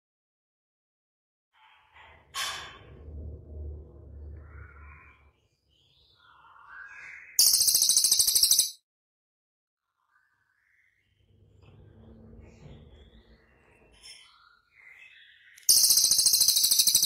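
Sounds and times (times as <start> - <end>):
songbird calls and chirps: 4.4 - 8.8, 12.4 - 17.0
rapid high-pitched bird trill: 7.4 - 8.8, 15.4 - 17.0.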